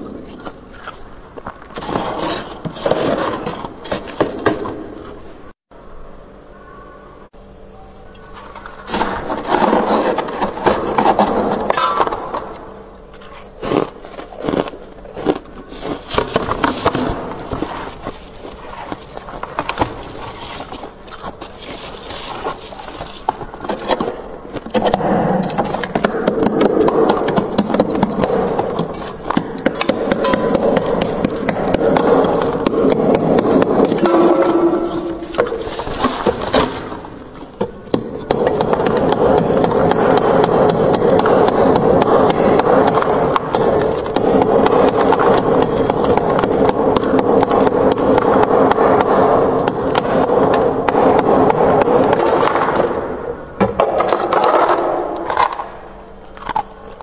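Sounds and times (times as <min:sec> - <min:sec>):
freezer frost scraping: 0:00.0 - 0:05.6, 0:08.2 - 0:40.4
sharp crackling crunches: 0:08.1 - 0:57.0.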